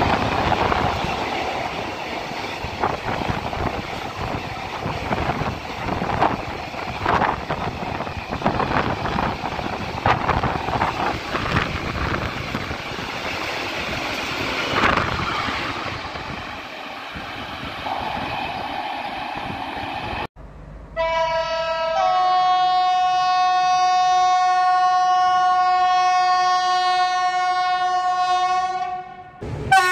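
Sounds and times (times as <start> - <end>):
freight train rumbling past: 0.0 - 29.9
train horn chord: 21.0 - 29.9.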